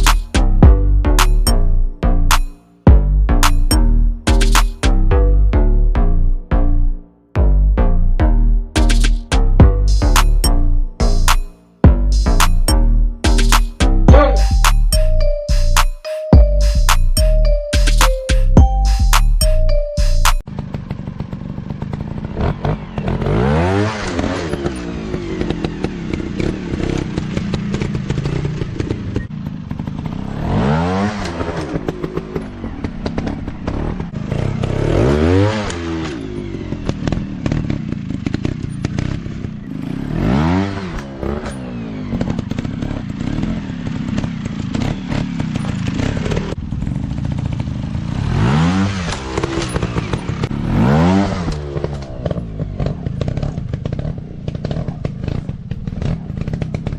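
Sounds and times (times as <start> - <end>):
dirt bike engines revving: 20.6 - 56.9.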